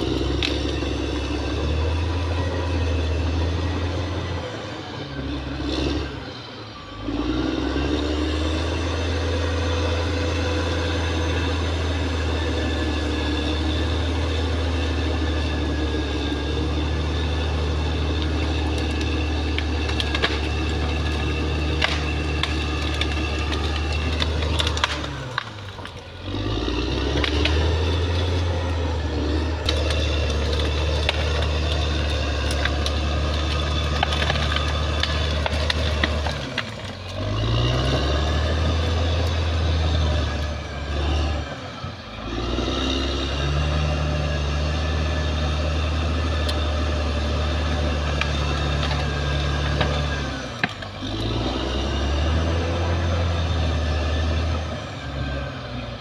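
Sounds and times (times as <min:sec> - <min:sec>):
bulldozer diesel engine under load: 0:00.0 - 0:56.0.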